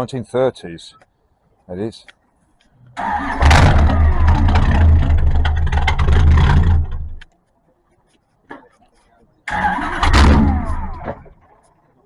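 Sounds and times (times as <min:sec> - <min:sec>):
car engine running: 0:03.4 - 0:07.2.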